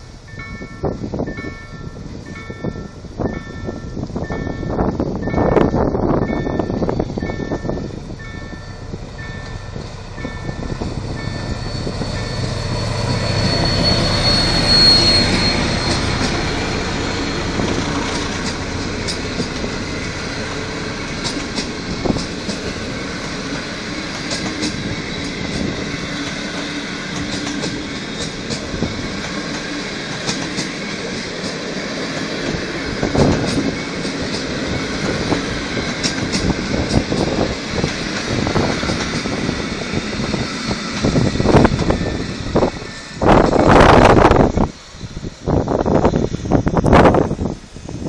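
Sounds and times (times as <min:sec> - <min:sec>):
diesel locomotive rumble: 0:00.0 - 0:48.0
wheels clicking over rail joints: 0:12.8 - 0:44.7.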